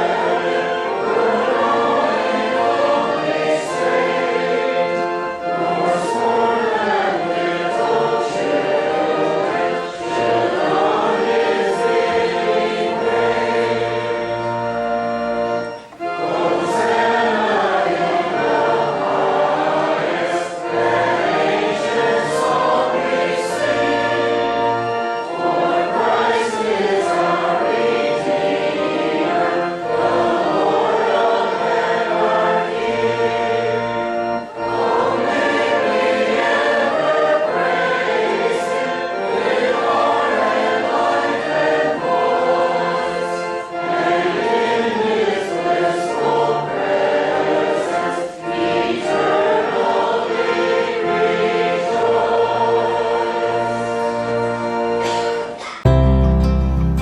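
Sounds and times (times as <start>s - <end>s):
choir singing a hymn: 0.0s - 55.9s.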